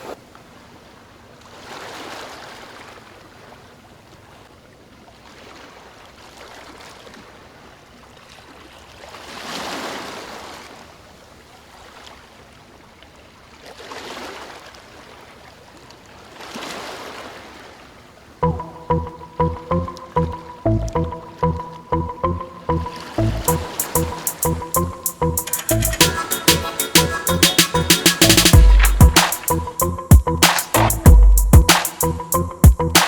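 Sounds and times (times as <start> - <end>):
small waves washing onto beach: 0.0 - 18.4.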